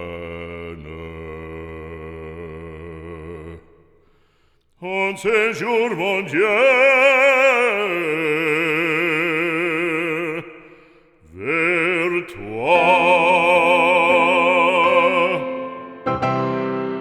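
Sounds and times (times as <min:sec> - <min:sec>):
operatic singer with vibrato: 0:04.8 - 0:17.0.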